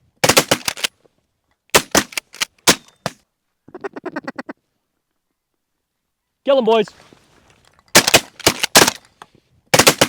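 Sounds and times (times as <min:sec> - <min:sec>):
shotgun blasts: 0:09.7 - 0:10.0.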